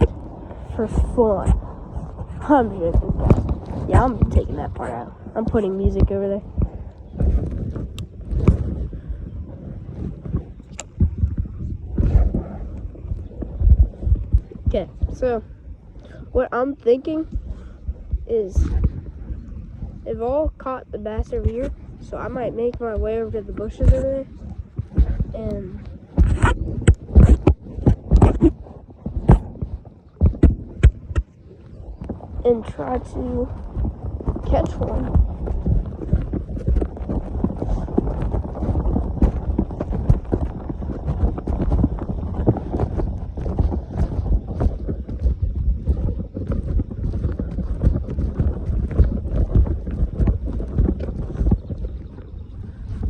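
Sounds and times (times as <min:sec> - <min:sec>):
microphone handling thumps: 0:00.0 - 0:16.4, 0:17.1 - 0:53.0
footsteps: 0:23.6 - 0:52.2.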